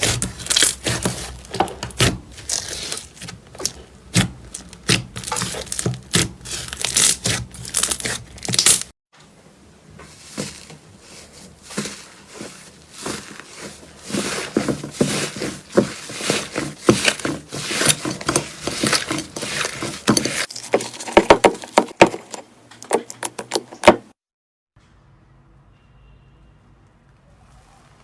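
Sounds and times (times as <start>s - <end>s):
slime squishing and popping: 0.0s - 8.9s.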